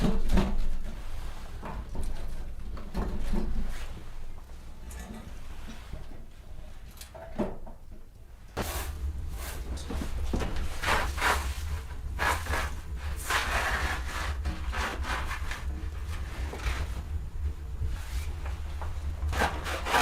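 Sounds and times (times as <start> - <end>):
low rumble: 8.6 - 20.0
handsaw cutting wood: 19.3 - 20.0.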